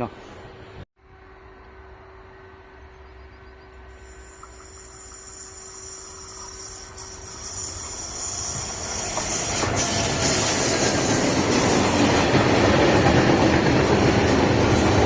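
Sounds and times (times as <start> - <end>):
train approaching: 0.1 - 15.0.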